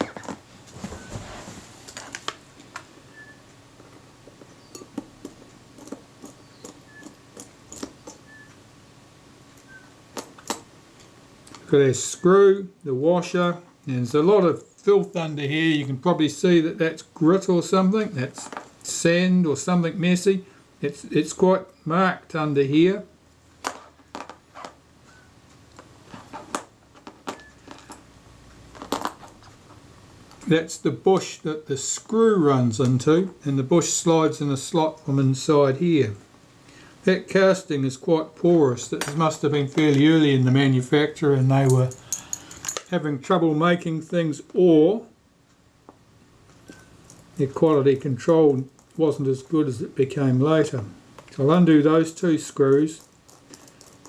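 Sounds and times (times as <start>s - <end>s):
faint high squeaks: 0.0s - 1.3s, 3.0s - 3.5s, 8.1s - 8.6s
small metal tools clicking: 41.6s - 42.9s.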